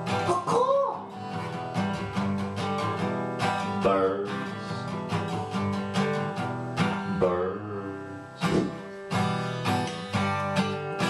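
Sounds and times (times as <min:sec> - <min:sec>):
acoustic guitar strumming: 0:00.0 - 0:11.0
person singing: 0:03.6 - 0:05.4, 0:06.7 - 0:08.9.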